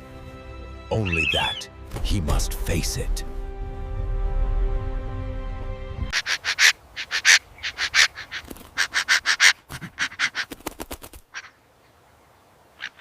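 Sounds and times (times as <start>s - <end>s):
background music: 0.0s - 6.2s
bird giving harsh alarm calls: 1.0s - 1.6s, 6.1s - 11.6s, 12.8s - 13.0s.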